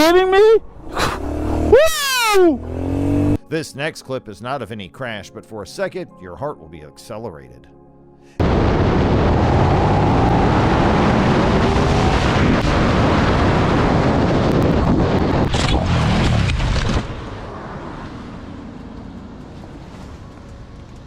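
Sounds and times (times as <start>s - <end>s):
motorcycle engine: 0.6s - 3.4s
wind rushing: 8.4s - 17.6s.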